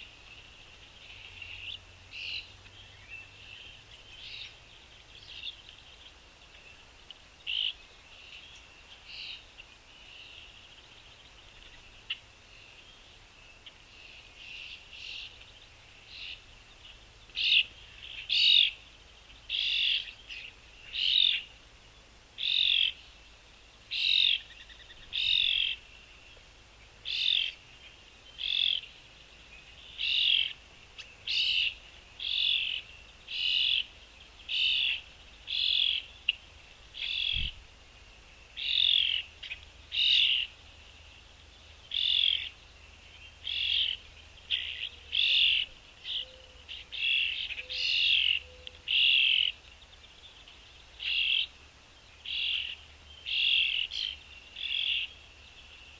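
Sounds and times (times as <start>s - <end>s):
small bird chirping: 27.0s - 37.6s, 41.3s - 51.6s, 52.2s - 55.9s.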